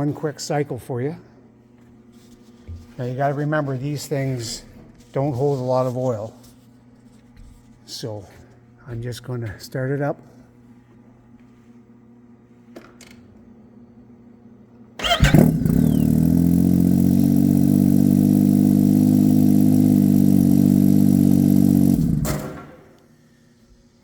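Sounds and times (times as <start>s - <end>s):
snowmobile engine idling: 15.0s - 22.8s.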